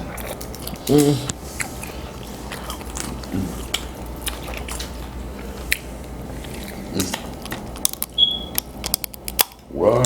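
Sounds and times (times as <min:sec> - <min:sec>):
chewing: 0:00.0 - 0:09.5
crab shells cracking: 0:07.0 - 0:09.7.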